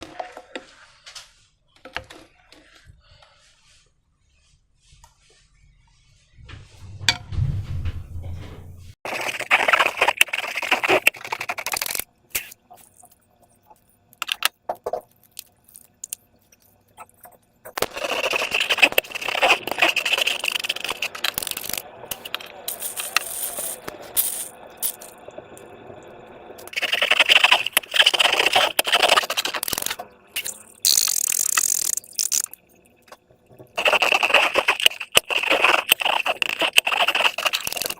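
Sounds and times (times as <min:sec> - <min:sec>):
slime being worked by hand: 0:09.1 - 0:13.0, 0:17.7 - 0:23.9, 0:26.7 - 0:32.5, 0:33.7 - 0:37.9.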